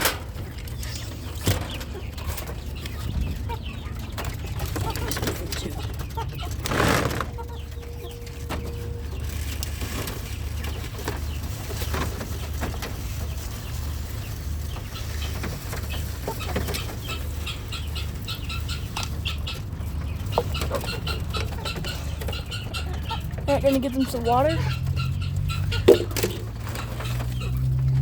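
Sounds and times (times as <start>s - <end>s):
chickens clucking: 0.0s - 28.0s
wings flapping: 3.9s - 8.1s.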